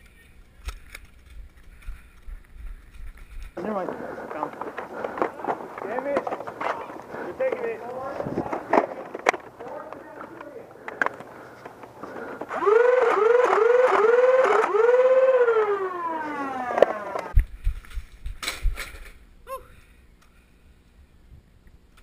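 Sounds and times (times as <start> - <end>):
siren-like wail: 12.5 - 17.4.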